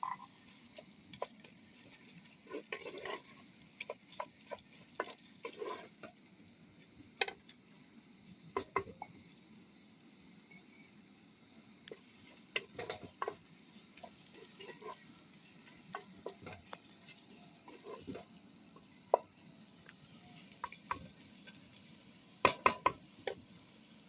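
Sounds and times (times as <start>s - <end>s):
utensil clinking and scraping pan: 0.0s - 6.2s, 7.2s - 7.5s, 11.9s - 19.4s, 22.4s - 23.5s
faint sizzling: 0.0s - 24.0s.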